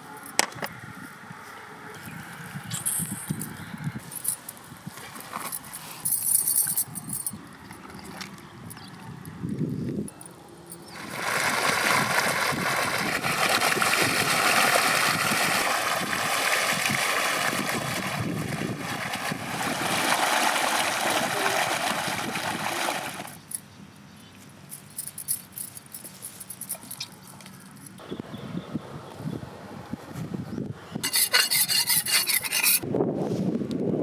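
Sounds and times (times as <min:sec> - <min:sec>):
water running and splashing: 0:10.9 - 0:23.4.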